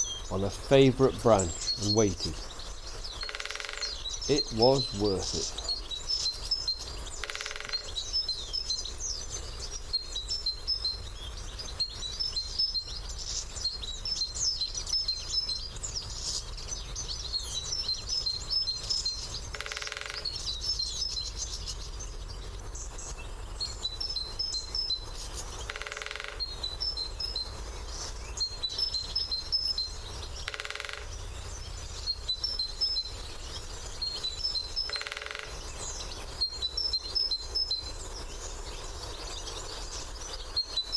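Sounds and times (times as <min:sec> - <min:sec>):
woodpecker drumming on branch: 0:00.0 - 0:06.0, 0:07.2 - 0:08.1, 0:19.4 - 0:20.5, 0:25.6 - 0:26.6, 0:30.4 - 0:31.2, 0:34.4 - 0:36.1
small birds twittering: 0:00.0 - 0:40.9.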